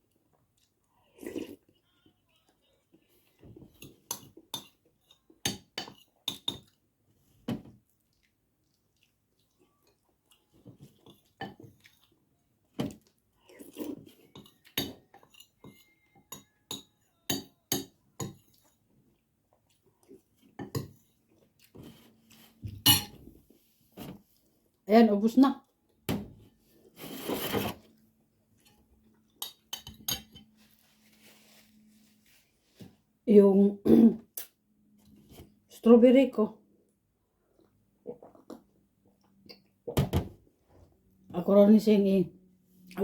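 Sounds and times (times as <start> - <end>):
cutlery clinking and scraping on plate: 3.7 - 6.8, 14.0 - 18.7, 22.7 - 23.2, 29.4 - 30.6.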